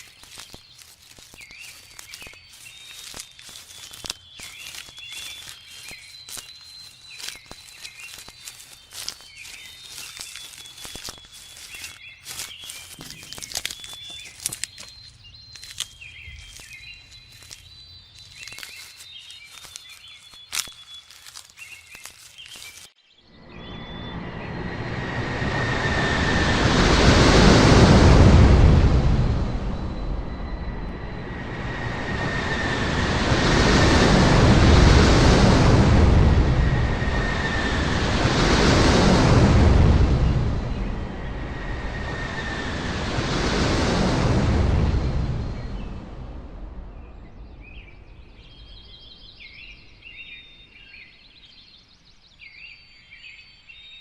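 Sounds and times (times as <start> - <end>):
rustling: 0.0 - 23.0
small birds chirping: 0.0 - 24.6, 46.8 - 54.0
ocean waves washing: 23.4 - 46.9.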